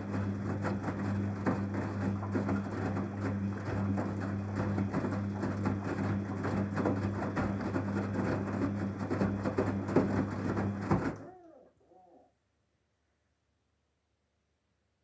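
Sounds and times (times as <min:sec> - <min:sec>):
water churning in tub: 0:00.0 - 0:11.4
washing machine humming: 0:00.0 - 0:12.2.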